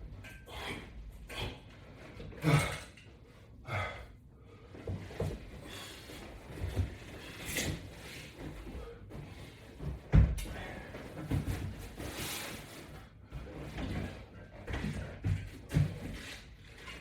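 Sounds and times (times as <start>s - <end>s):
person breathing hard: 3.6s - 4.8s.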